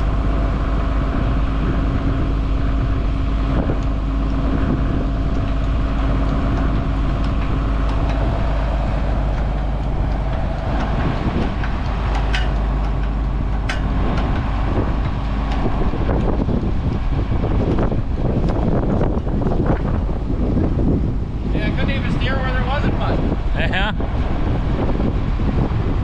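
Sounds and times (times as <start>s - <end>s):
tractor engine running: 0.0s - 26.0s
sharp metallic clicks: 5.3s - 16.4s.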